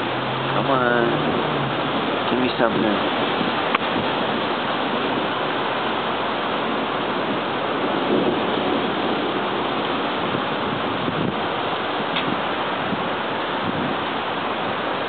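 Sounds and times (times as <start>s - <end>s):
rain hissing: 0.0s - 15.0s
wind: 0.0s - 15.0s.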